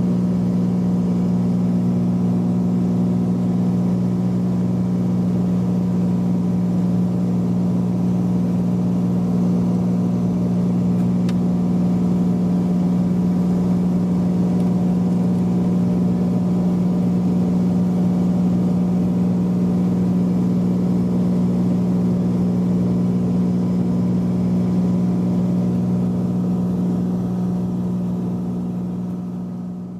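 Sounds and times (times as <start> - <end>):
propeller plane engine droning: 0.0 - 29.9.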